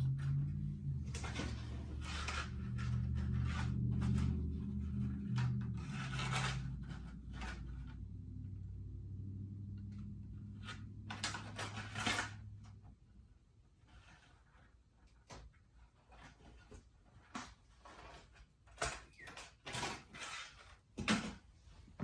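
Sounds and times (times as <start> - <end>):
metal rods clattering and scraping: 0.0 - 8.0.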